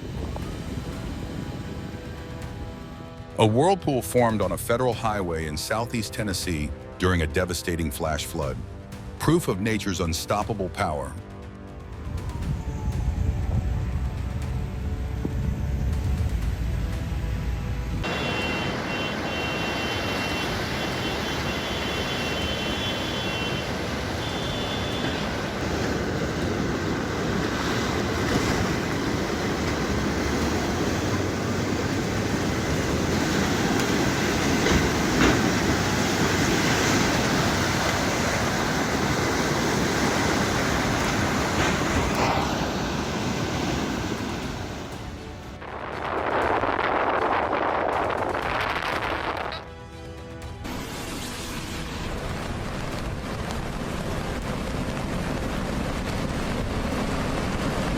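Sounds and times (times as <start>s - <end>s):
floodwater rushing: 13.5s - 57.9s.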